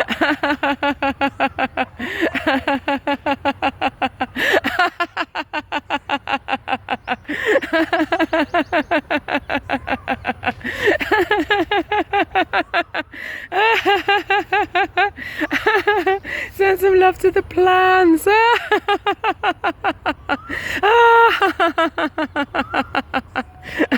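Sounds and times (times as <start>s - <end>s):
person laughing out loud: 0.0s - 16.3s, 18.2s - 23.9s
person breathing: 13.1s - 13.5s.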